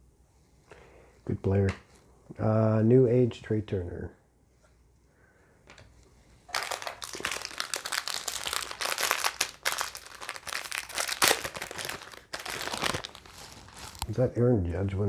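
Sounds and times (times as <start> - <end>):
card pack wrapper crinkling: 6.5 - 14.2.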